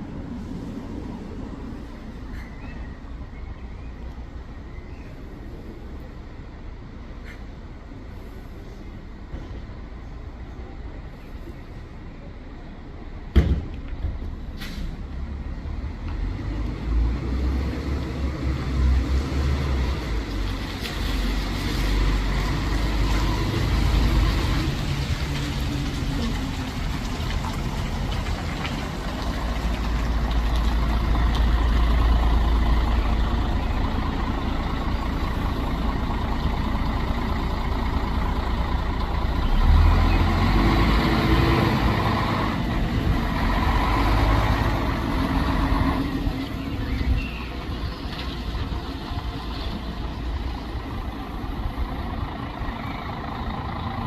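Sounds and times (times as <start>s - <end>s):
bus engine rumbling: 0.0s - 54.0s.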